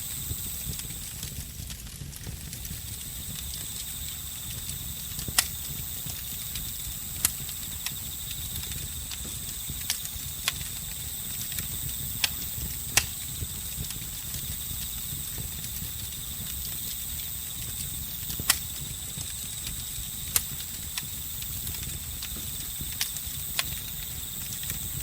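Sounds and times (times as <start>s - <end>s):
crickets and insects chirping: 0.0s - 1.4s, 2.7s - 25.0s
campfire crackling and popping: 0.0s - 25.0s
low rumble of burning wood: 0.0s - 25.0s.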